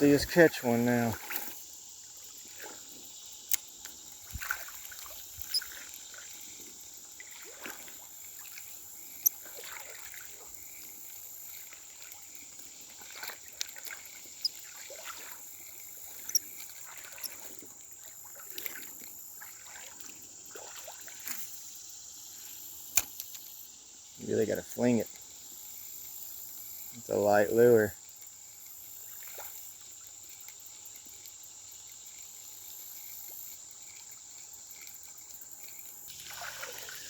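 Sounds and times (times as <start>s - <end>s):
high insect drone: 0.0s - 37.0s
water gurgling and splashing: 4.2s - 6.3s, 7.2s - 21.3s, 36.1s - 37.0s.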